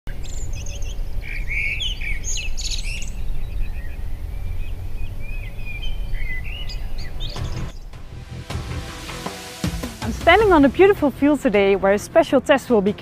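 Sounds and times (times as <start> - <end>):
small birds chirping: 0.1 - 8.0.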